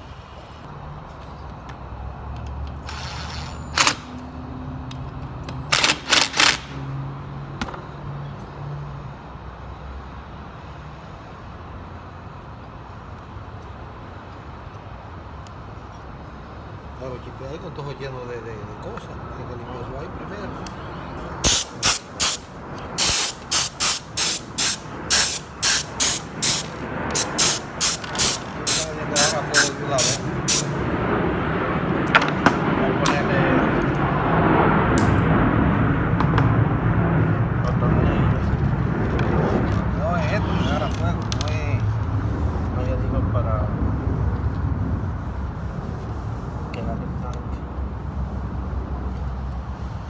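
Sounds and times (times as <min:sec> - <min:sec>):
hissing spray bursts: 0:21.4 - 0:30.8
steady low hum: 0:41.9 - 0:50.0.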